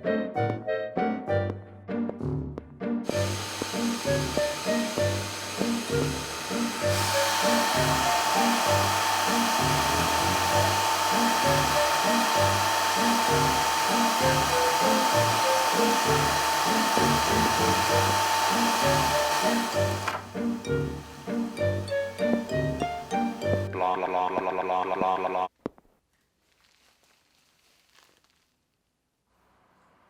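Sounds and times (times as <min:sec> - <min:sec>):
rhythmic background music: 0:00.0 - 0:24.0
steady whirring hiss: 0:03.1 - 0:23.6.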